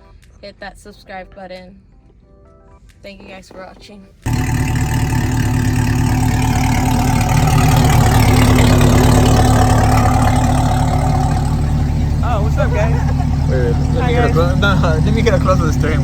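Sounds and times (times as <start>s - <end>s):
car engine idling: 4.3s - 16.0s.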